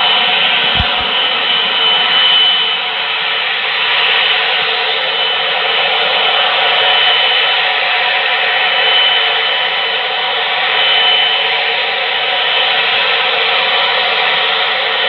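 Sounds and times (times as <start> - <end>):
high whine: 0.0 - 6.8
jet engines at high power: 0.0 - 15.0.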